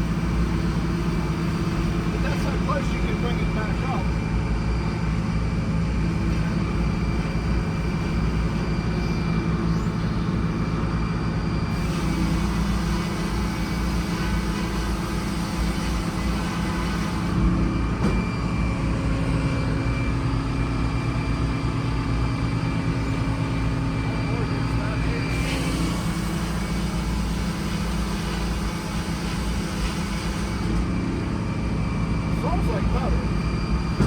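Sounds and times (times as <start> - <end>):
sawmill engine drone: 0.0 - 34.0
saw cutting through log: 11.7 - 17.5, 24.0 - 31.4.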